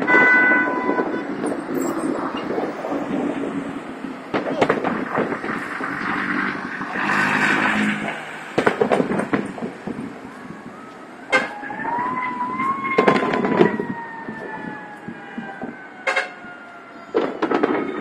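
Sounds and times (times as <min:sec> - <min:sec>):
siren wailing: 0:00.0 - 0:18.0
fireworks bangs and pops: 0:01.3 - 0:10.5, 0:12.9 - 0:14.4, 0:17.1 - 0:18.0.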